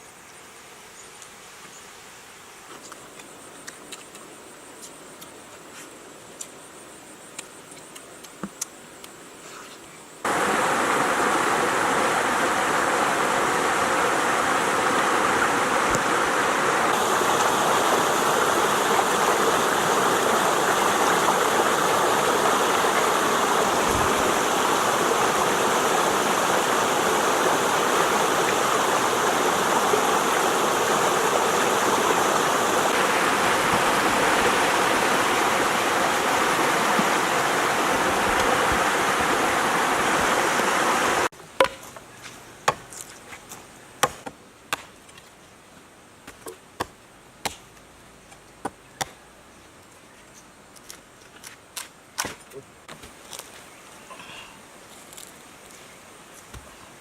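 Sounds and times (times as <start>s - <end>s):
rushing water: 10.2s - 41.3s.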